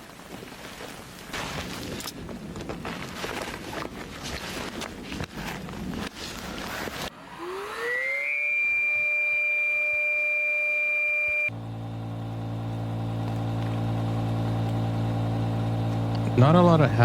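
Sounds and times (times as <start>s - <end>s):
rustling: 0.0s - 7.1s
electric air pump whining: 7.1s - 17.0s
air pump humming: 7.2s - 17.0s.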